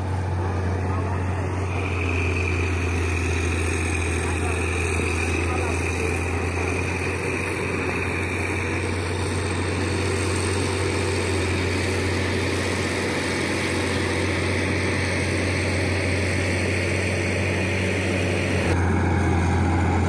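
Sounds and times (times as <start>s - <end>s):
heavy machinery engine drone: 0.0s - 20.0s.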